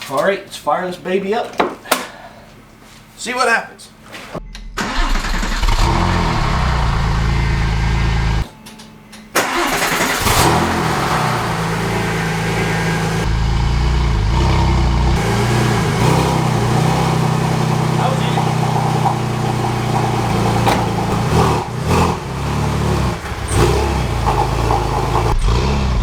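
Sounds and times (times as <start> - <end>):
car engine starting and running: 4.8 - 8.5, 9.3 - 26.0
car engine revving: 5.2 - 8.4, 9.4 - 26.0.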